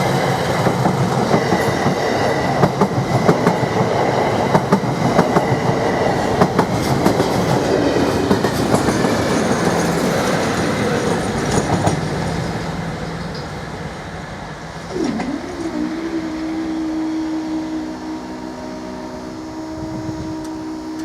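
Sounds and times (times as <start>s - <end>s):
wheels clicking over rail joints: 0.0s - 13.6s
train running past: 0.0s - 21.0s.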